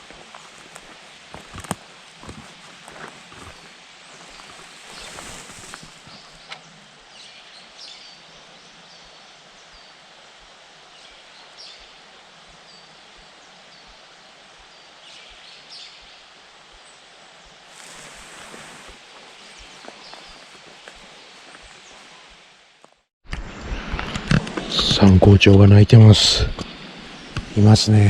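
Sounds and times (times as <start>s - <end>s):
rustling: 0.0s - 6.6s, 17.7s - 23.0s.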